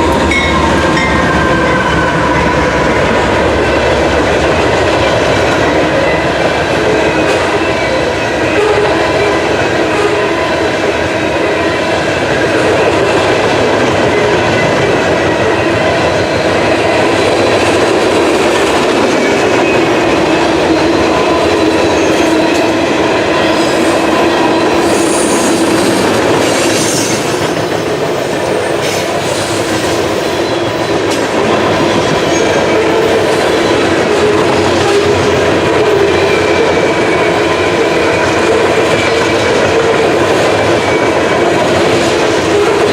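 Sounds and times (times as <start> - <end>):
train wheels clattering on rails: 0.0 - 42.9
train wheels squealing: 20.8 - 42.9.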